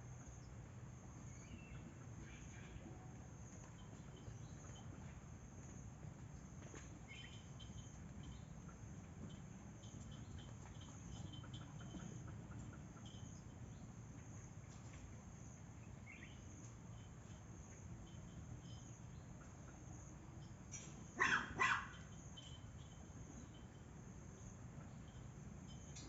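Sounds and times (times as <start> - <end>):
low steady background hum: 0.0 - 26.0
insect-like chirping: 7.1 - 13.8, 15.4 - 26.0
dog barking: 21.2 - 22.0.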